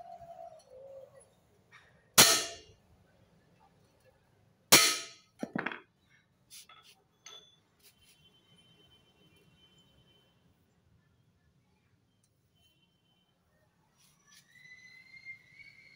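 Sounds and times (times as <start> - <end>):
hammer blows on metal: 2.2 - 2.7.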